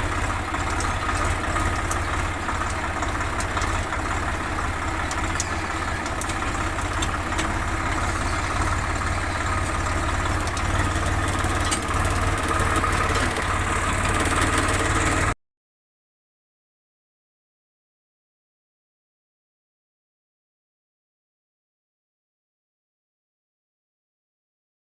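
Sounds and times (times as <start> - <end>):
tractor diesel engine running: 0.0 - 15.4.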